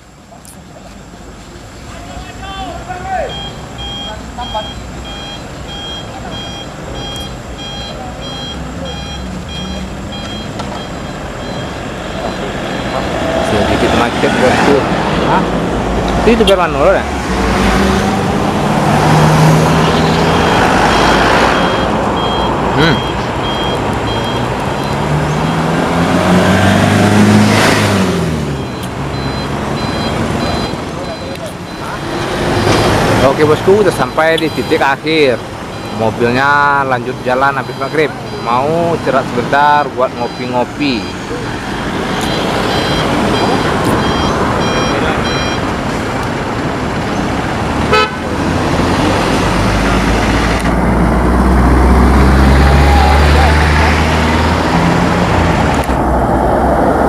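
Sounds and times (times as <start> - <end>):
vehicle engine in traffic: 0.0 - 57.0
short high beeps: 3.3 - 13.1, 19.8 - 25.6, 28.5 - 36.4, 37.1 - 38.9, 40.2 - 45.7
horn toot: 47.9 - 48.3.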